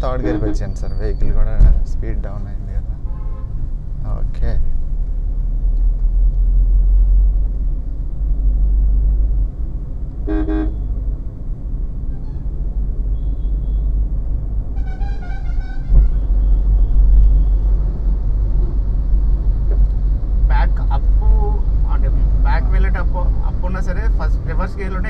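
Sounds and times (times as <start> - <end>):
car interior road rumble: 0.0 - 25.0
wavering horn: 0.1 - 0.8, 10.3 - 10.9, 14.8 - 16.6
short horn toot: 0.2 - 0.8, 10.3 - 10.9.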